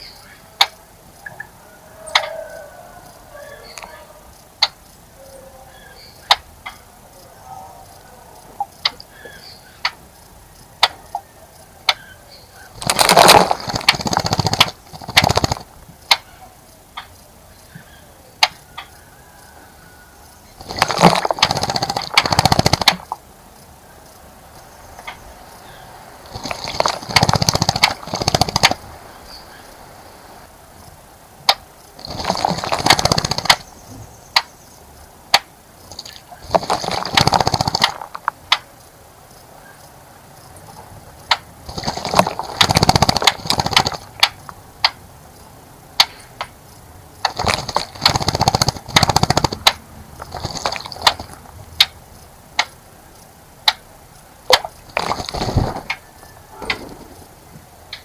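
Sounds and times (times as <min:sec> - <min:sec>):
sharp ticks: 0:00.0 - 0:01.5, 0:02.1 - 0:05.0, 0:06.2 - 0:06.8, 0:08.6 - 0:11.2, 0:11.9 - 0:12.1, 0:12.8 - 0:17.3, 0:18.4 - 0:19.5, 0:20.2 - 0:29.9, 0:30.8 - 0:39.4, 0:41.1 - 0:56.0
bird splashing in water: 0:12.8 - 0:15.7, 0:20.6 - 0:23.2, 0:25.0 - 0:30.4, 0:32.0 - 0:33.6, 0:35.9 - 0:38.1, 0:41.7 - 0:44.2, 0:47.2 - 0:51.5, 0:54.5 - 0:57.5.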